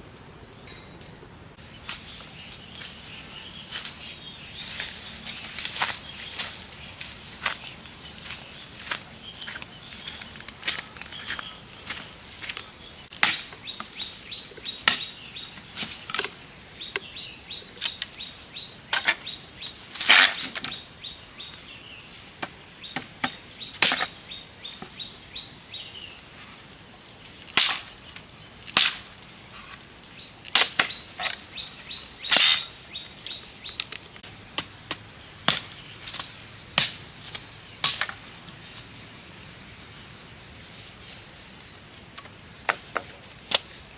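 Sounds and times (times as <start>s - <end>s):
high-pitched whine: 0.0s - 15.2s.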